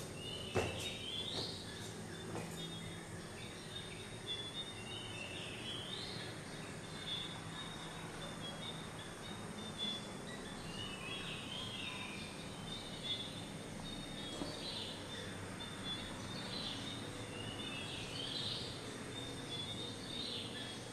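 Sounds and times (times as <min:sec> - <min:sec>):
birds chirping: 0:00.0 - 0:20.9.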